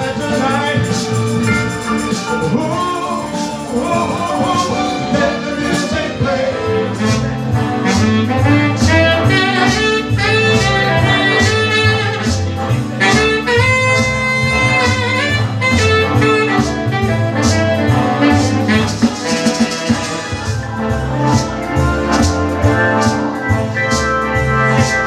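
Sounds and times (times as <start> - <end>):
drum beat: 0.0 - 6.5, 7.9 - 20.7
bass line: 0.0 - 25.0
horn playing lead line: 0.0 - 25.0.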